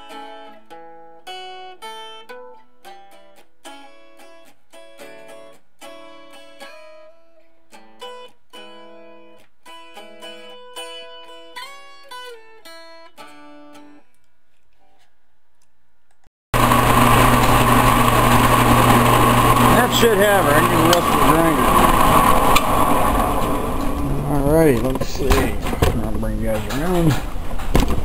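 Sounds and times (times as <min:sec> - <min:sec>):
guitar picked melody: 0:00.0 - 0:15.1, 0:16.6 - 0:27.5
loud steady noise: 0:16.6 - 0:27.3.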